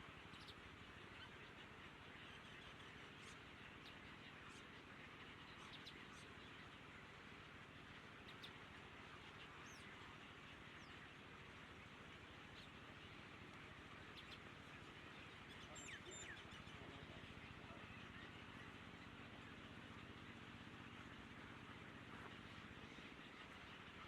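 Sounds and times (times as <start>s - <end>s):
background hiss and hum: 0.0s - 24.0s
faint bird chirps: 14.0s - 19.8s.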